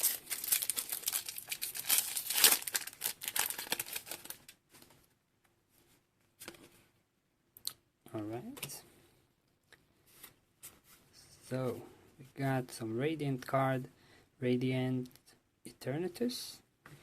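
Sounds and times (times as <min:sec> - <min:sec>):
foil wrapper crinkling and tearing: 0:00.0 - 0:04.6.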